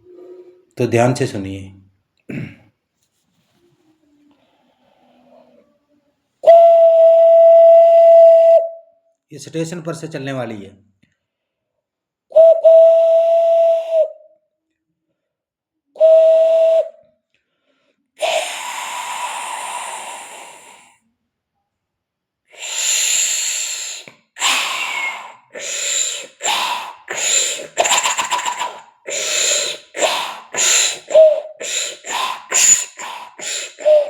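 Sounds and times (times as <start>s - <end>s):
vocal whistle: 0.0s - 0.8s, 6.4s - 8.9s, 12.3s - 14.3s, 16.0s - 17.0s, 18.2s - 21.0s, 22.6s - 34.0s
man imitating steam locomotive: 18.2s - 20.9s, 22.6s - 34.0s
vocal hiss of steam: 18.2s - 21.0s, 22.6s - 34.0s
vocal puffing chuffs: 22.6s - 34.0s.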